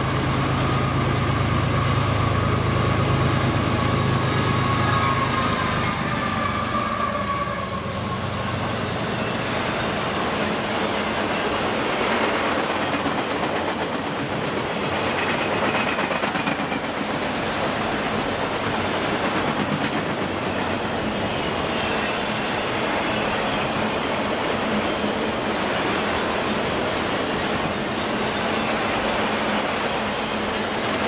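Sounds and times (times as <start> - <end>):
freight train rumbling past: 0.0 - 31.0
train wheels clicking over rail joints: 0.2 - 1.5, 10.5 - 20.9.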